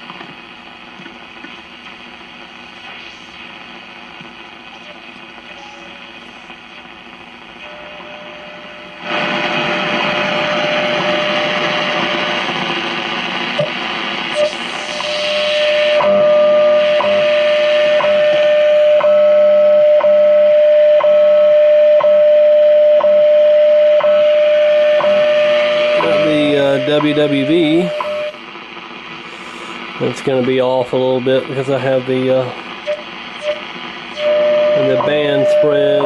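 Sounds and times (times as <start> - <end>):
radio static hiss: 0.0 - 20.5, 23.4 - 36.0
steady radio tone: 0.0 - 36.0
time signal ticks: 34.8 - 36.0.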